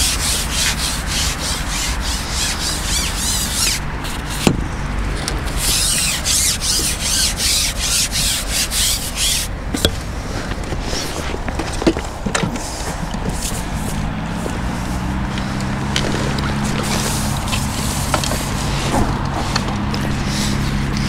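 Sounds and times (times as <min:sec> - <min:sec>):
scratchy rubbing: 0:00.0 - 0:04.5, 0:05.4 - 0:09.6, 0:12.5 - 0:21.0.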